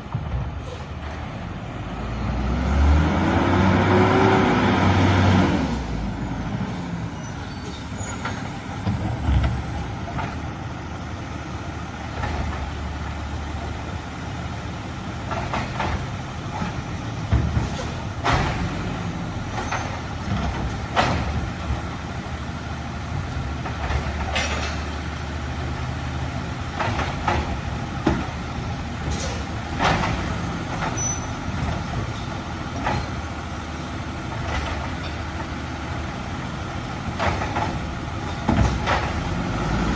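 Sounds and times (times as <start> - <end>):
garbage truck engine drone: 0.0 - 39.9.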